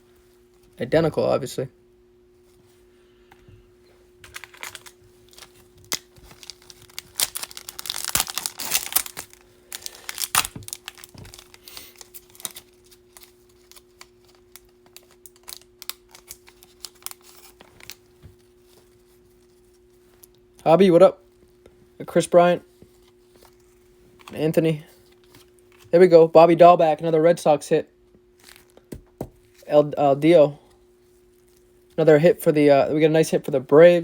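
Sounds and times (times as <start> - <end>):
faint low hum: 0.0 - 34.0
foil wrapper crinkling and tearing: 4.2 - 20.3, 28.4 - 29.7.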